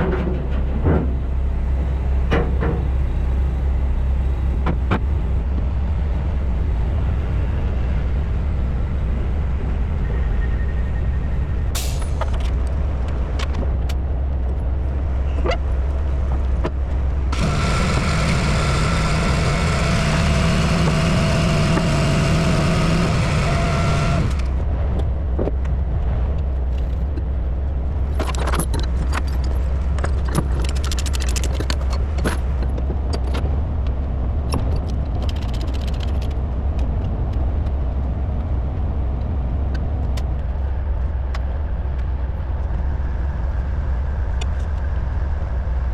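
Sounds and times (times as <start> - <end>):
diesel engine rumbling: 0.0 - 45.9
engine whine: 0.0 - 45.9
metallic clicks and clanks: 28.1 - 33.5, 34.5 - 37.4.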